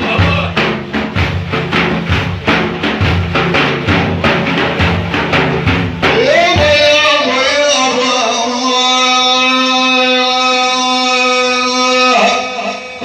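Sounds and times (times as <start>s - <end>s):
group chanting: 0.0s - 2.0s
frame drums beating: 0.0s - 7.5s
solo voice singing: 6.1s - 13.0s.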